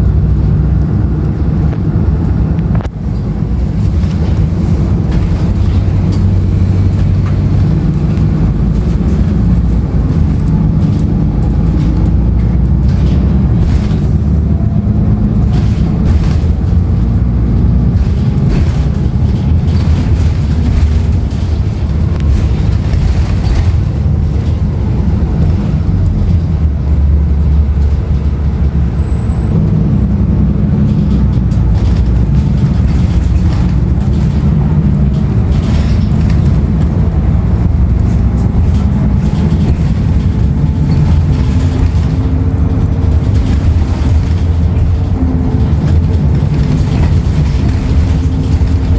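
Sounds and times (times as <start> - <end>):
bus diesel engine running: 0.0 - 48.9
road and tyre noise: 0.0 - 48.9.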